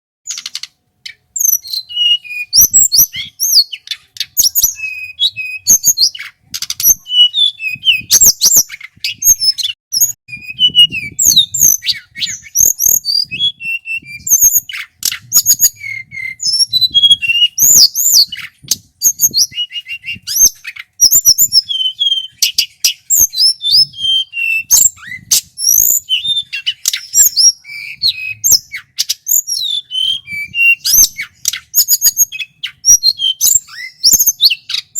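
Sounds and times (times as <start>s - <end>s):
sharp clicks: 0.3s - 0.8s
bird singing whistled phrases: 0.3s - 34.9s.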